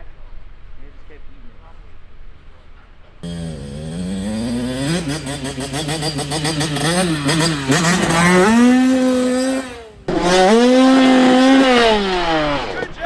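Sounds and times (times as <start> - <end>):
dirt bike engine revving: 3.2 - 13.0.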